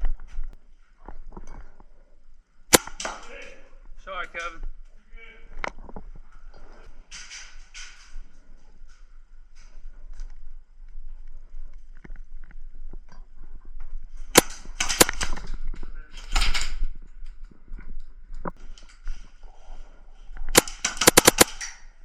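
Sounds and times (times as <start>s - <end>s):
airsoft guns firing: 2.7s - 3.6s, 14.4s - 15.5s, 20.5s - 21.8s.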